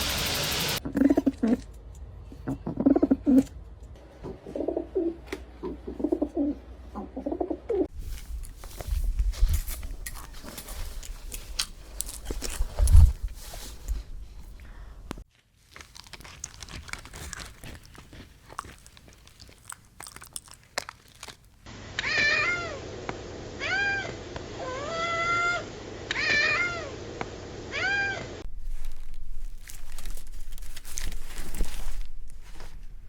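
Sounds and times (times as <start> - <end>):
animal crying: 22.0 - 22.8, 23.6 - 27.0, 27.7 - 28.4.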